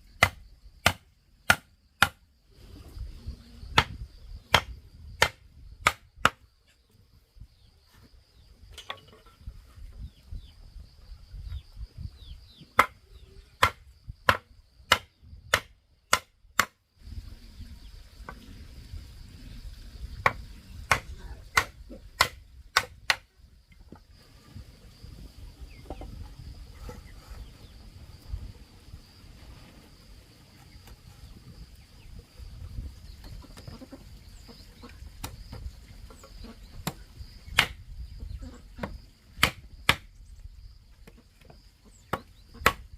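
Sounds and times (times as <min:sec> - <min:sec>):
hand tool striking blows: 0:20.2 - 0:23.2.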